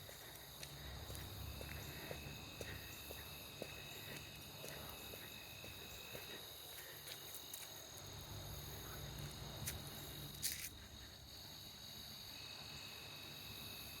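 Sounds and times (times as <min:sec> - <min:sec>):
low rumble of walking: 0:00.0 - 0:11.1
insects trilling: 0:00.0 - 0:14.0.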